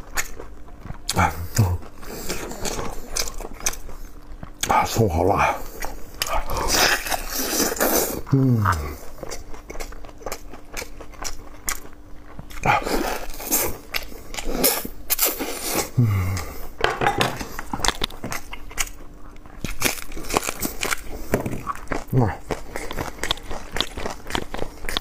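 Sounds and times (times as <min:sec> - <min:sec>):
wet chewing and smacking: 0:00.0 - 0:15.4, 0:17.4 - 0:25.0.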